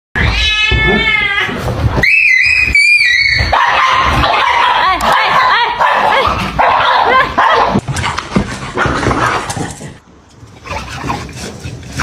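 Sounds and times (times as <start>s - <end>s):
cat crying: 0.2s - 1.7s.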